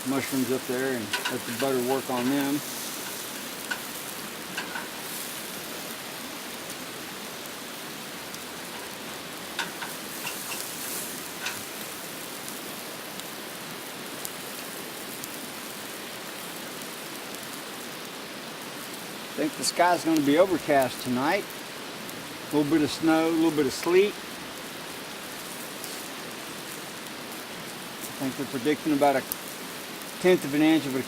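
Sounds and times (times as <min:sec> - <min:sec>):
sharp pops and crackles: 0:00.0 - 0:13.4
meat sizzling on a grill: 0:00.0 - 0:31.0.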